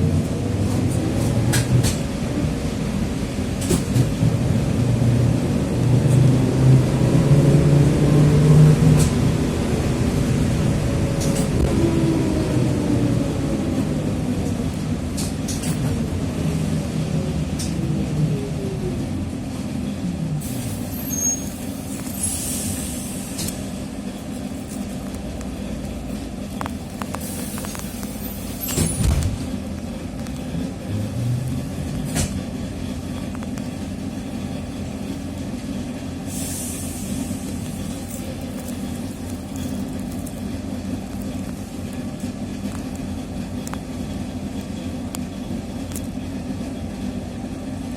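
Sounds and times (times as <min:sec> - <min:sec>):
trolleybus motor whine: 0:00.0 - 0:47.9
hiss: 0:20.4 - 0:23.8, 0:27.2 - 0:29.0, 0:36.3 - 0:38.1.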